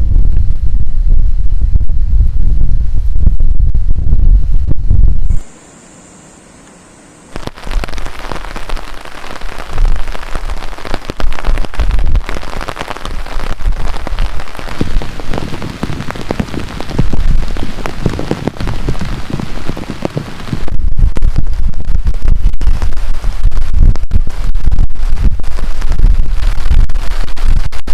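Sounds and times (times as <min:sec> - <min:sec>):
heavy rain pelting down: 0:07.4 - 0:27.9.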